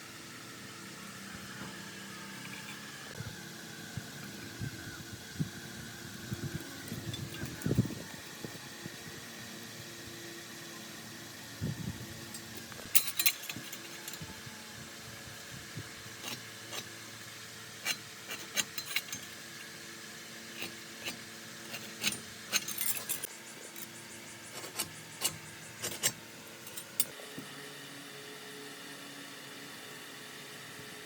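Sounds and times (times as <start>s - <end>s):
steady low hum: 0.0s - 27.1s
metal tools clinking and scraping: 2.4s - 2.8s, 6.8s - 8.0s, 12.3s - 14.3s, 16.2s - 16.9s, 17.8s - 19.8s, 20.5s - 27.1s.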